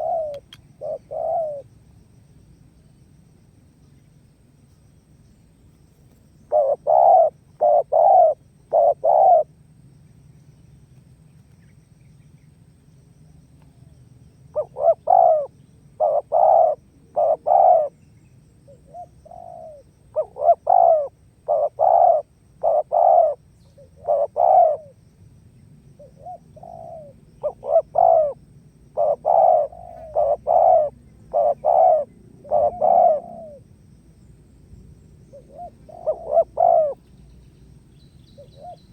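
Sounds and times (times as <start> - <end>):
dove cooing: 0.0 - 1.7, 6.5 - 9.5, 14.6 - 18.0, 18.7 - 25.0, 26.0 - 33.7, 35.3 - 37.1, 38.3 - 38.9.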